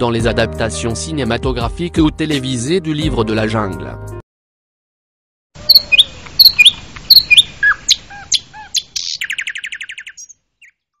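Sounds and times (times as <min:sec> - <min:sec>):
bird chirping: 0:05.6 - 0:11.0
bird trill: 0:05.6 - 0:11.0.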